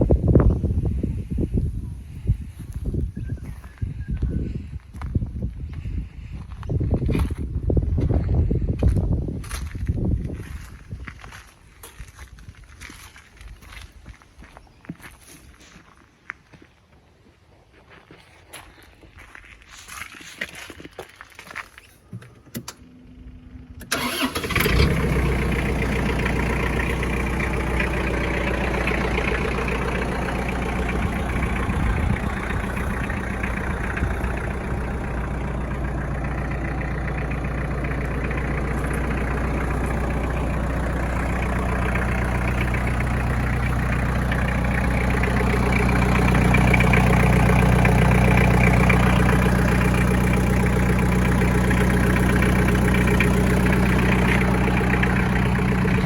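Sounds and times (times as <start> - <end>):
tractor diesel engine idling: 22.2 - 56.0.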